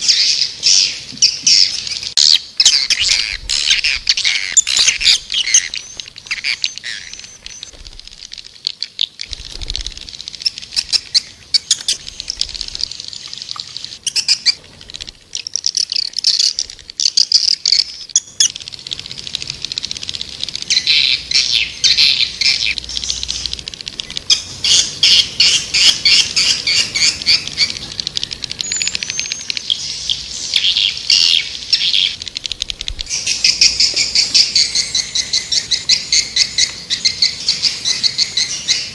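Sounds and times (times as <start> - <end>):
swiftlets twittering: 1.7 - 38.9.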